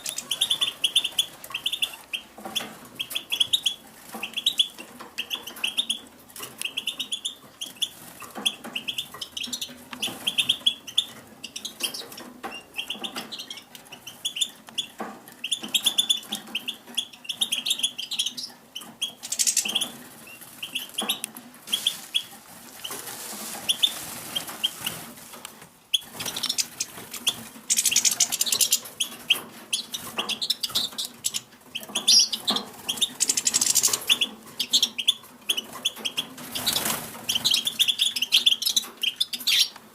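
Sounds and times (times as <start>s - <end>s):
finches chirping: 0.0s - 23.0s, 25.9s - 39.8s
wings fluttering: 18.8s - 34.8s, 35.5s - 37.9s.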